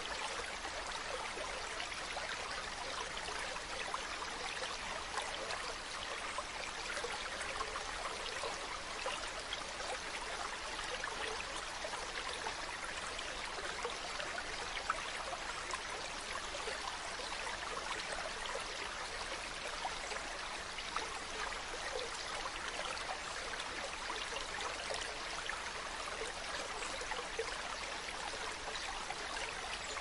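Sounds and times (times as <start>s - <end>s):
stream flowing over rocks: 0.0s - 30.0s.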